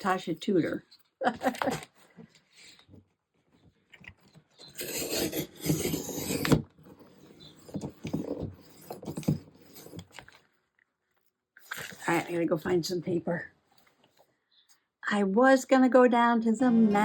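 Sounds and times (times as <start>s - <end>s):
paper scraping and rustling: 4.6s - 10.5s.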